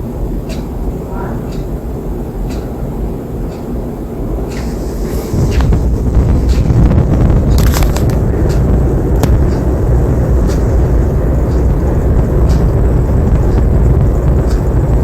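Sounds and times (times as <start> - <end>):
ceiling fan air rumble: 0.0 - 15.0.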